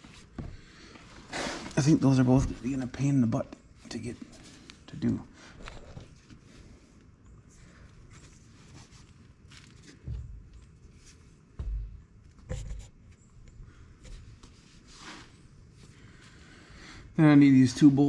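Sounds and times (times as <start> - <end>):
dull thumps: 9.8 - 13.0.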